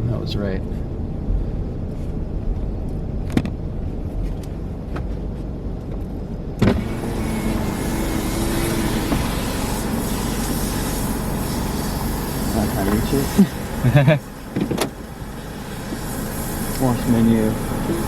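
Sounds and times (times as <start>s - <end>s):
car engine idling: 0.0s - 18.0s
power window motor whine: 6.6s - 16.1s
hiss of outside noise: 6.6s - 18.0s
thump: 14.6s - 14.9s.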